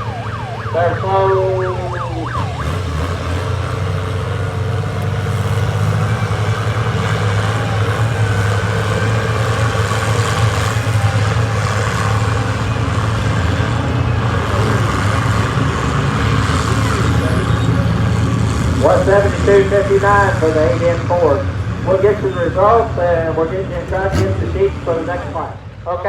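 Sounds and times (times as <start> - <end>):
tractor engine running under load: 0.0 - 25.8.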